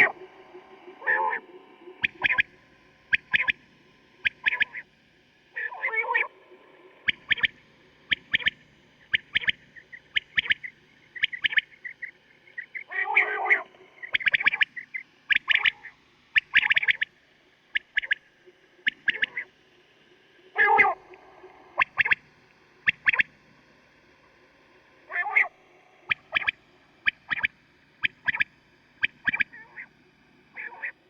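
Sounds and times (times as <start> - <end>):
faint steady hum: 0.0 - 31.0
quail calling: 1.0 - 1.4, 2.0 - 2.4, 3.1 - 3.6, 4.2 - 4.8, 5.6 - 6.3, 7.1 - 7.5, 8.1 - 17.1, 17.7 - 18.2, 18.8 - 19.5, 20.6 - 21.2, 21.8 - 22.2, 22.8 - 23.2, 25.1 - 25.5, 26.1 - 29.9, 30.6 - 30.9.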